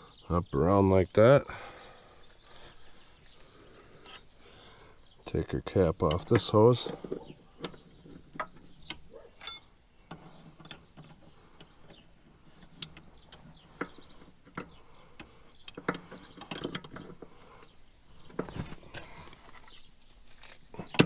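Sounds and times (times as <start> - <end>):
metallic clicks and knocks of hand tools: 12.6 - 17.3.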